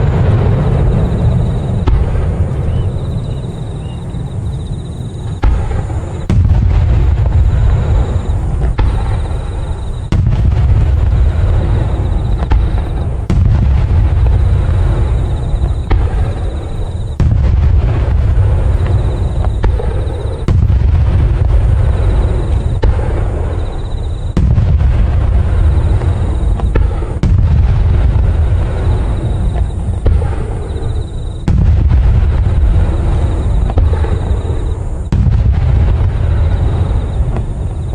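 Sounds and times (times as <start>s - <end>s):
sharp firecracker cracks: 0.0s - 24.9s
firecracker booms: 0.0s - 37.9s.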